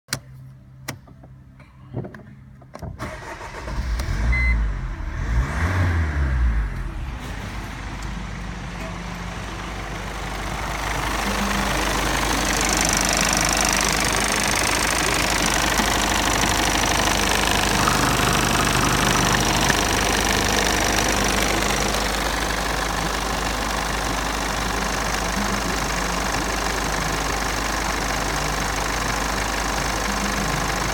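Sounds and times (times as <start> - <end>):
diesel engine starting and idling: 2.7 - 30.9.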